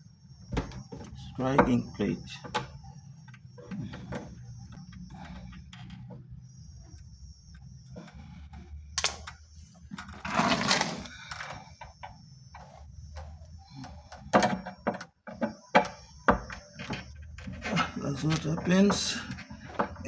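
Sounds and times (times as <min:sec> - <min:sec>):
scraping on wood: 0:03.6 - 0:07.0, 0:07.6 - 0:09.0, 0:09.8 - 0:20.0
sharp knocks and clicks: 0:11.7 - 0:20.0.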